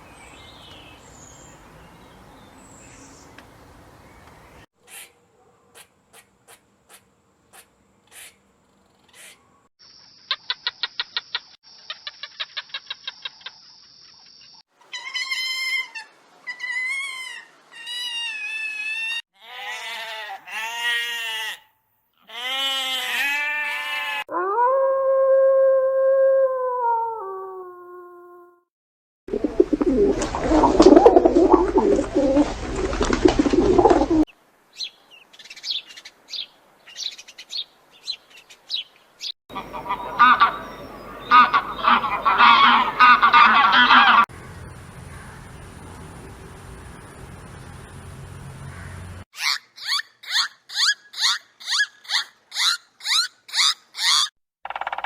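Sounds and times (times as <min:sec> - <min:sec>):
animal calls rising and falling: 0:14.8 - 0:19.2, 0:29.3 - 0:34.3.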